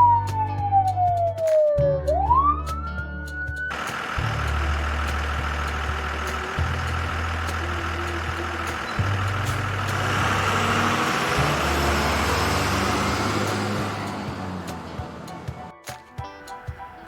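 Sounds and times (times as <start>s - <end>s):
vehicle engine humming: 2.1s - 15.8s
traffic hiss: 3.7s - 15.5s.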